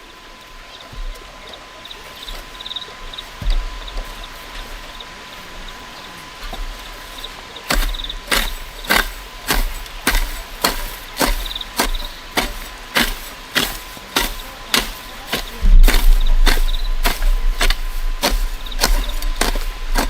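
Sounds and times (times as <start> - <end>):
hand tool striking something solid: 7.7 - 20.0.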